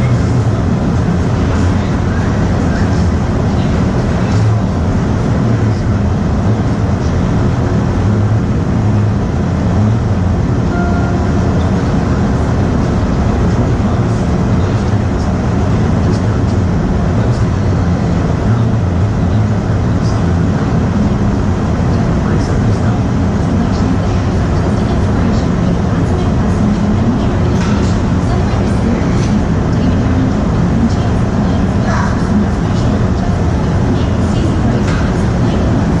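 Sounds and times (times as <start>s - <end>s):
road noise: 0.0s - 36.0s
vehicle engine rumble: 0.0s - 36.0s
faint beep: 10.7s - 12.0s.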